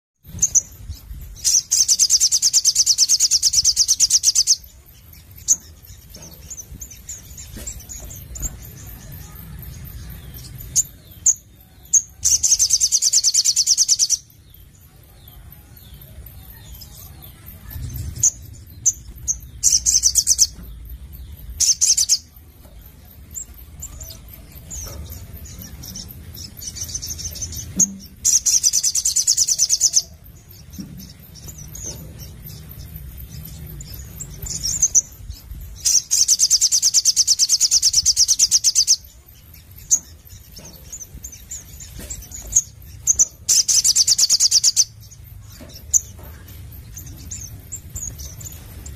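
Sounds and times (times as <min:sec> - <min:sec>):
bird singing high trills: 0:00.2 - 0:48.9.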